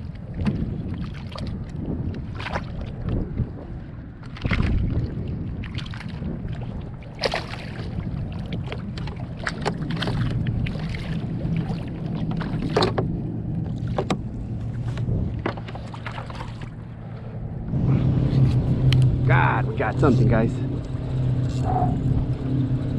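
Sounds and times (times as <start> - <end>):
water slapping against kayak hull: 0.0 - 17.4
steady low hum: 9.8 - 22.9.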